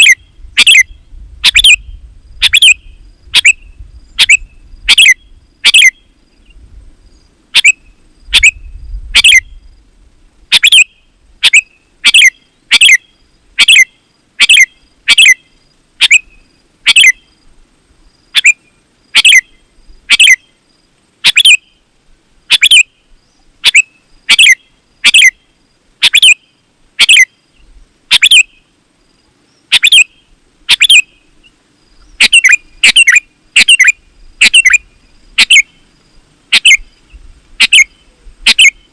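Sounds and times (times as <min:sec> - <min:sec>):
bird calling sharp notes: 0:00.0 - 0:01.8, 0:02.4 - 0:03.6, 0:04.2 - 0:06.0, 0:07.6 - 0:09.6, 0:10.5 - 0:17.2, 0:18.3 - 0:18.6, 0:19.2 - 0:20.5, 0:21.2 - 0:21.7, 0:22.5 - 0:22.9, 0:23.6 - 0:25.4, 0:26.0 - 0:27.3, 0:28.1 - 0:28.6, 0:29.7 - 0:31.2, 0:32.0 - 0:35.7, 0:36.5 - 0:36.9, 0:37.6 - 0:38.9.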